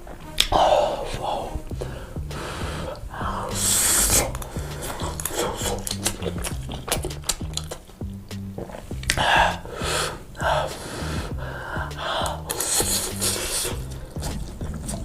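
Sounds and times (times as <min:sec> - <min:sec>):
music with low bass line: 0:00.0 - 0:15.0
chewing pizza: 0:05.0 - 0:07.9.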